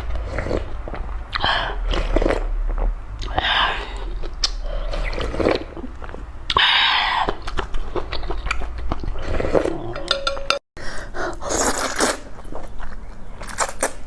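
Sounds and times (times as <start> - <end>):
wet chewing: 0.0 - 10.0, 11.2 - 14.0
slurping noodles: 3.2 - 7.5, 9.1 - 9.9, 11.2 - 12.4.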